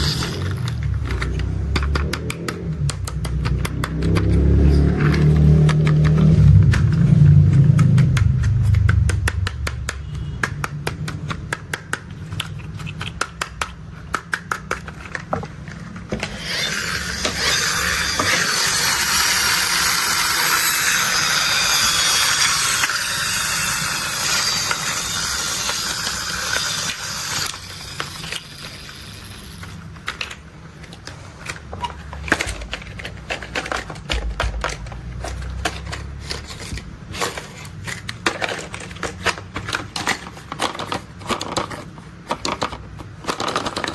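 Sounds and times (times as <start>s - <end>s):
sharp plastic clicks: 1.0s - 4.4s, 5.1s - 15.4s.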